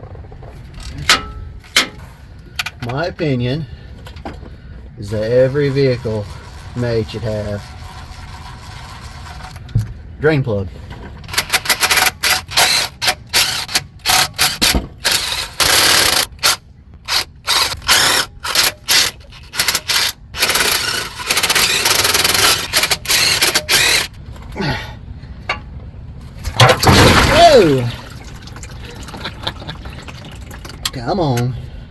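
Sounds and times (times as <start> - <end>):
power tool bursts: 5.1 - 9.6, 11.3 - 24.1.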